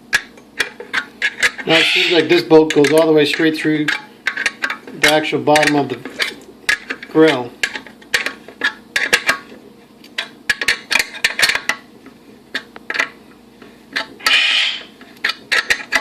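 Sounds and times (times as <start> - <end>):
short harsh rasp: 1.6 - 2.3, 14.2 - 15.0.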